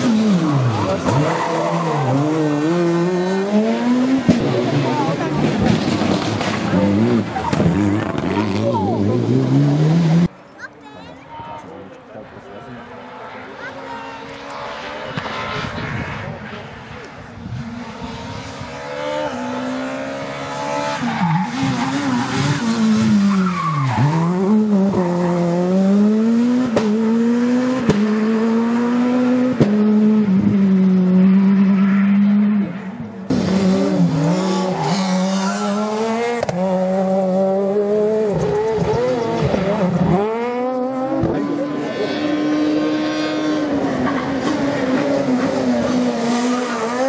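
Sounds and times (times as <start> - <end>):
rally car engine at high revs: 0.0 - 10.4, 12.8 - 47.0
exhaust pops: 5.4 - 8.6.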